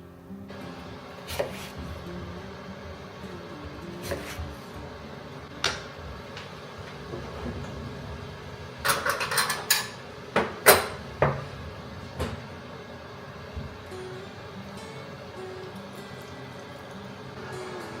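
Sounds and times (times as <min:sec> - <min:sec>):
kitchenware clinking and knocking: 0:08.8 - 0:11.5.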